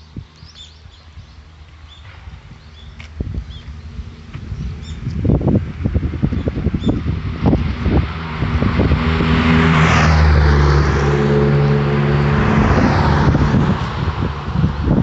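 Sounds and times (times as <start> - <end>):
vehicle passing by: 3.6 - 15.0.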